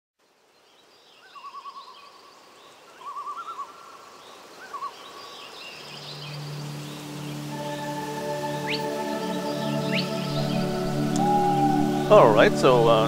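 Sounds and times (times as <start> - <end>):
outdoor ambience hiss: 0.2 - 13.0
high bird chirps: 8.6 - 12.4
warbling whistled bird trill: 8.6 - 13.0.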